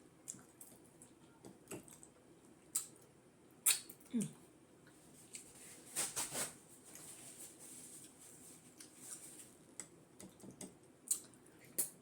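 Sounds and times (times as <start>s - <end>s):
person eating with clicks and smacks: 0.2s - 5.5s, 8.7s - 12.0s.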